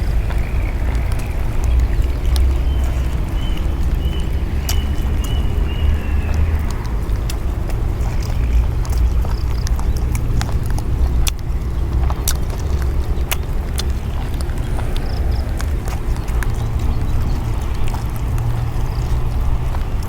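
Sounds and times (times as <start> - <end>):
chewing: 0.0 - 20.0.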